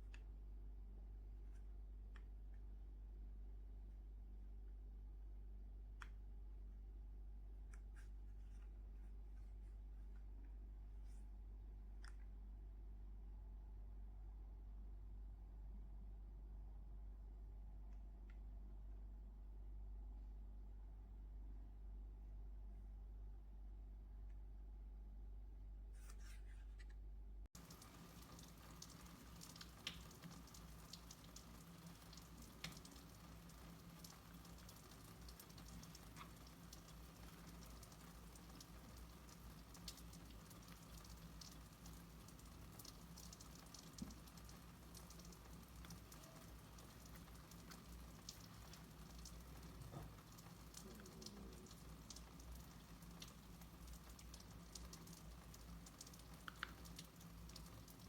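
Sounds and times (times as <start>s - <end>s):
low steady hum: 0.0s - 58.0s
small clicks and ticks: 27.6s - 58.0s.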